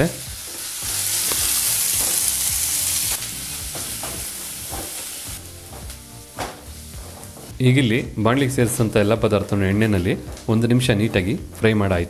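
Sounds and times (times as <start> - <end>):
onion sizzling in hot oil: 0.0 - 7.6.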